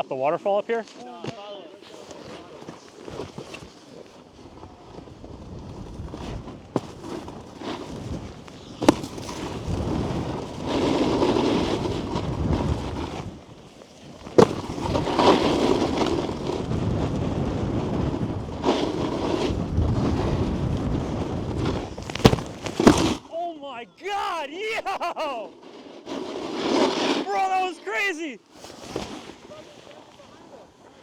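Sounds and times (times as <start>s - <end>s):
snowboard scraping over snow: 0.4s - 31.0s
snowboard landing thud: 1.0s - 13.4s, 14.0s - 23.4s, 24.9s - 27.3s, 28.5s - 30.3s
wind buffeting microphone: 14.5s - 23.2s.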